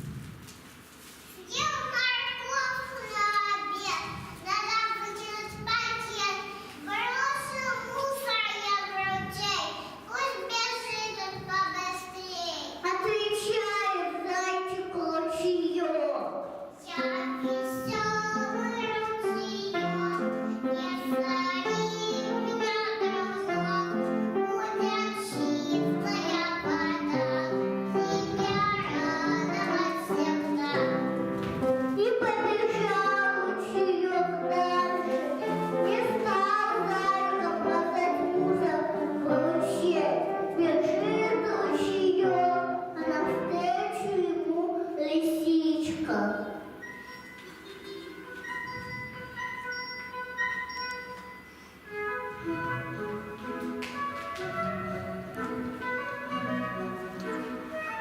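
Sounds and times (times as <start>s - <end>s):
instrumental backing music: 16.4s - 58.0s.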